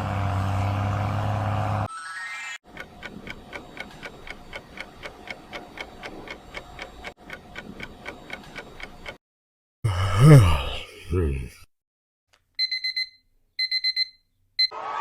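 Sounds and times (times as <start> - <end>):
steady clock-like ticking: 2.7 - 9.2.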